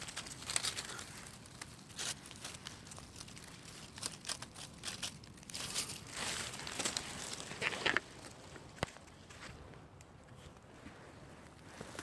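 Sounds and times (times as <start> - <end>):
dry leaves crunching underfoot: 0.0 - 9.5.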